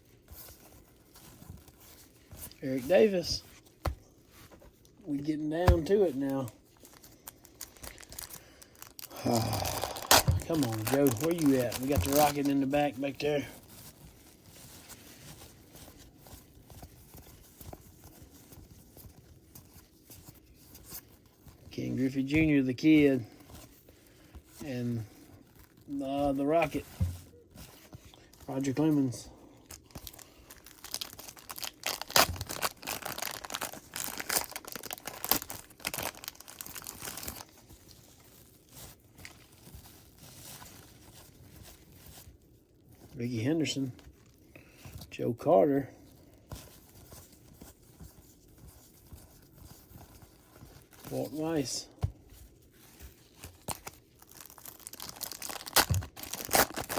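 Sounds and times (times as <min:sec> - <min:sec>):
wrapper tearing and crinkling: 0:05.6 - 0:20.0, 0:29.7 - 0:42.4, 0:52.5 - 0:56.9.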